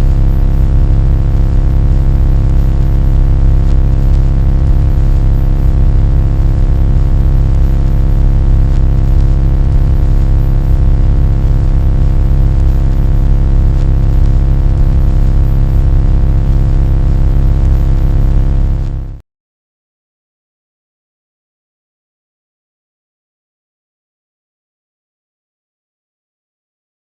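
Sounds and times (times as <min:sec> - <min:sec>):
hum of steady tones: 0:00.0 - 0:01.7, 0:02.5 - 0:19.0
low rumbling drone: 0:00.0 - 0:01.7, 0:02.5 - 0:18.1.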